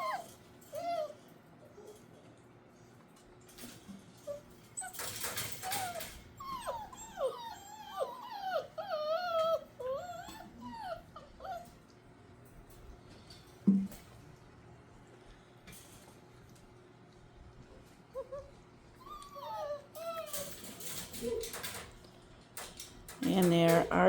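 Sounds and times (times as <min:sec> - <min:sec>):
puppies whining and whimpering: 0:00.0 - 0:02.0, 0:04.2 - 0:12.0, 0:18.0 - 0:21.8.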